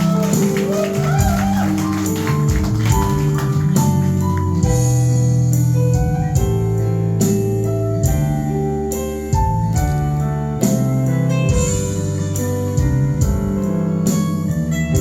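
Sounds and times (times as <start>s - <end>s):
drum beat: 0.0s - 5.0s
keyboard chords and melody: 0.0s - 15.0s.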